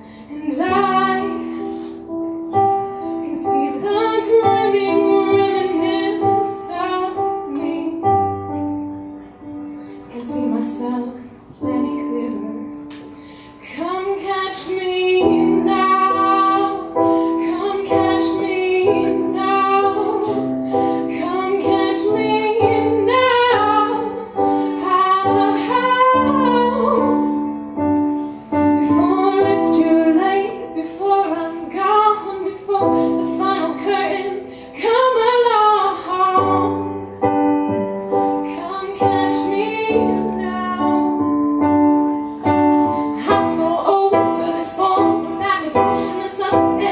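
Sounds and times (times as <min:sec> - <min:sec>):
woman singing: 0:00.0 - 0:02.0, 0:02.8 - 0:08.6, 0:10.0 - 0:27.7, 0:28.6 - 0:37.2, 0:38.1 - 0:46.9
keyboard playing held chords: 0:00.0 - 0:46.9.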